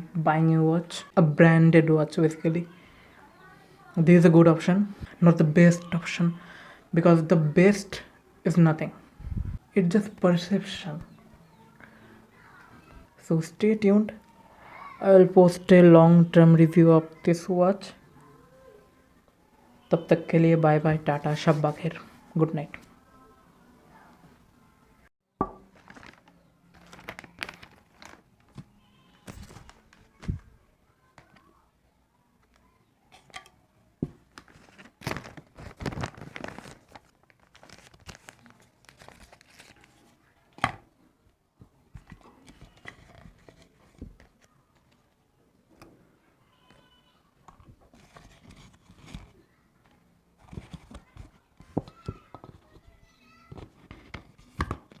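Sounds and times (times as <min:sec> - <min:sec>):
rustling and crinkling: 0:25.6 - 0:31.5, 0:32.4 - 0:40.6, 0:41.9 - 0:45.2, 0:47.5 - 0:55.0.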